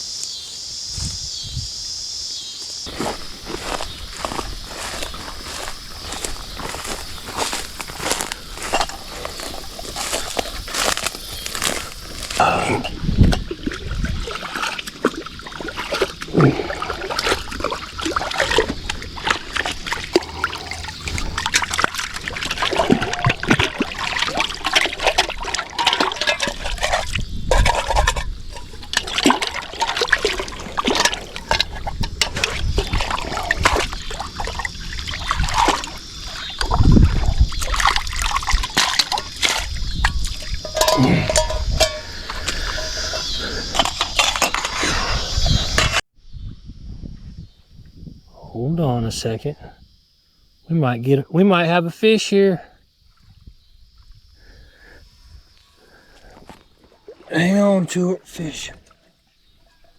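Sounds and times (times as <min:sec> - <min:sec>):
water splashing and trickling: 0:02.8 - 0:46.0, 0:55.8 - 0:59.9.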